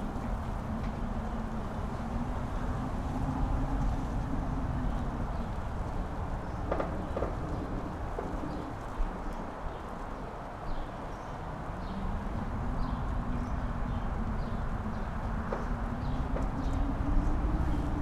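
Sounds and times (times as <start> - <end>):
wind gusting against microphone: 0.0 - 18.0.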